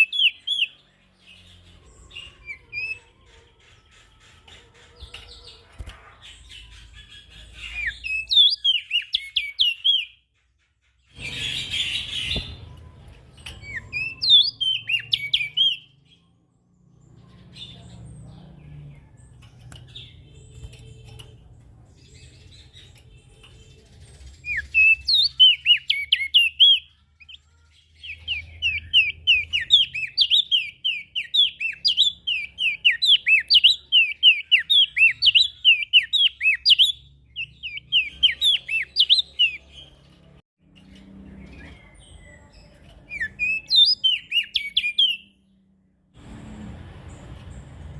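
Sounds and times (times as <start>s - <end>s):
songbird sharp sweeping chirps: 11.1s - 16.3s.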